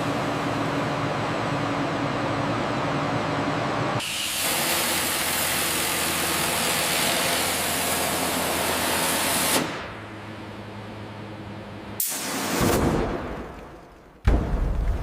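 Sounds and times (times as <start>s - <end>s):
low machine hum: 0.0s - 4.0s, 9.7s - 12.0s
loud pressurized air hiss: 4.0s - 7.8s.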